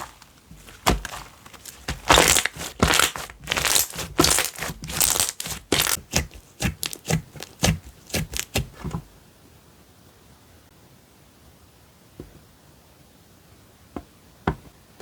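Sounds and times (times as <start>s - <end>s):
slime squeezed by hand crackling: 0.0s - 8.9s.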